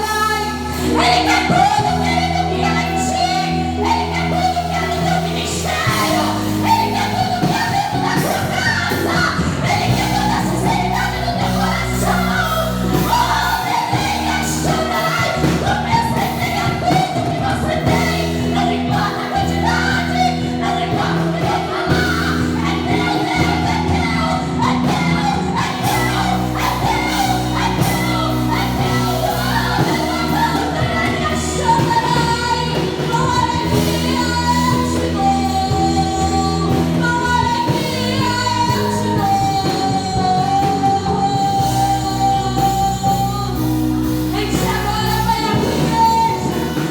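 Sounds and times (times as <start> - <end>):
gospel singing: 0.0 - 46.9
instrumental backing: 0.0 - 46.9
woman singing: 0.0 - 46.9.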